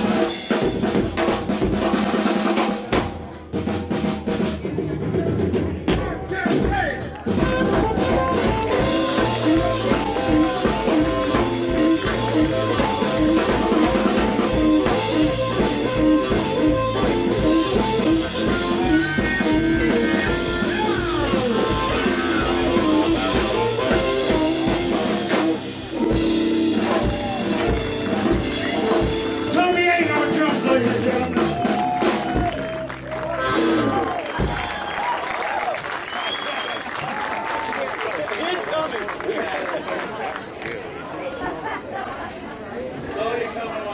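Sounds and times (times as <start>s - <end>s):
drum kit beat: 0.0s - 36.0s
electric guitar: 7.2s - 35.0s.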